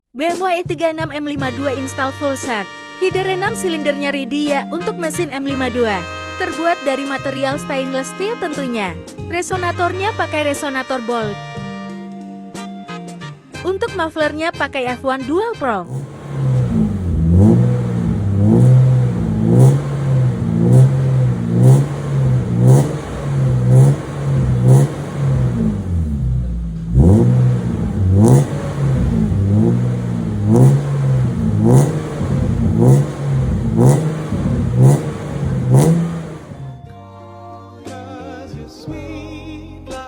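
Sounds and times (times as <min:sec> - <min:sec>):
car engine revving: 0:15.9 - 0:36.8.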